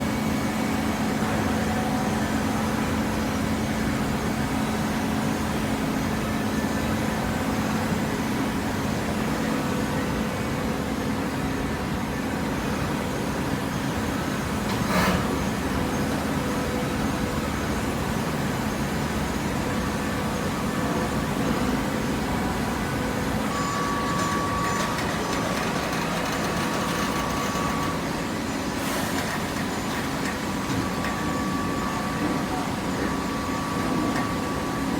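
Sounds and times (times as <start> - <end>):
high machine whine: 0.0 - 34.9
hydraulic machine hum: 13.8 - 34.9.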